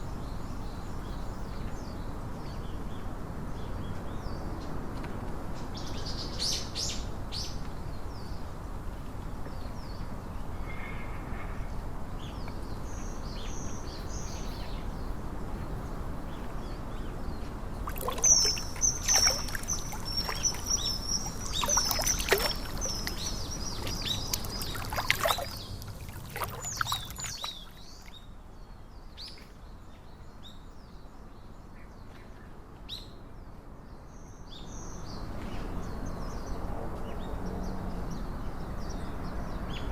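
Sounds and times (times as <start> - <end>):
birds chirping and trilling: 10.7 - 29.5.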